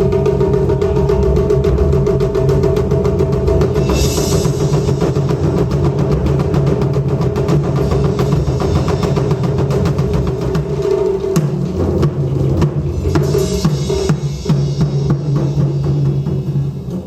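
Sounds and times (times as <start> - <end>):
taiko drums played fast: 0.0 - 17.0
bright crash: 3.8 - 6.2.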